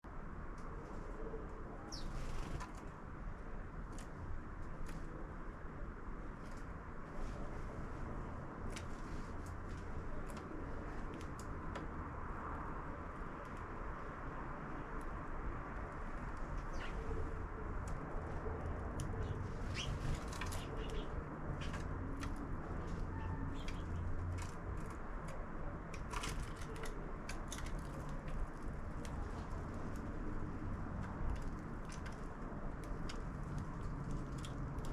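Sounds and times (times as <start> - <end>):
low background noise: 0.0 - 34.9
sparrows chirping: 1.9 - 2.2, 16.6 - 17.2, 19.0 - 21.9, 22.8 - 24.1.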